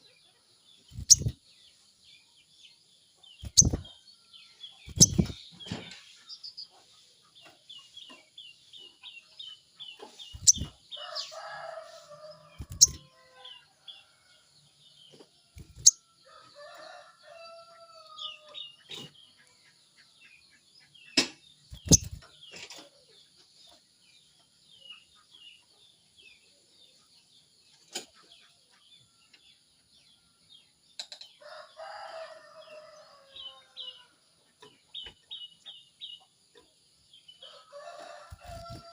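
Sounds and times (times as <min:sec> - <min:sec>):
songbird chirping: 0:00.0 - 0:38.9
rooster crowing: 0:11.0 - 0:13.5, 0:31.4 - 0:34.0, 0:37.5 - 0:38.9.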